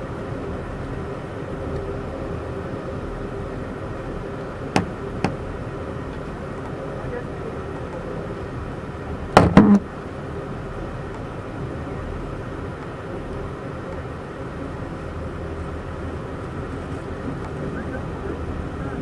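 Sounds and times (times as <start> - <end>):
passenger train rumble and rail noise: 0.0 - 19.0.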